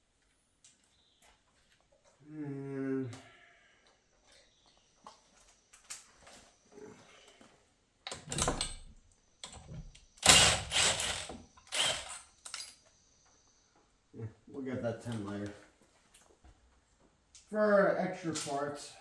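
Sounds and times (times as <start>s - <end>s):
metal parts scraping and rattling: 10.2s - 12.8s.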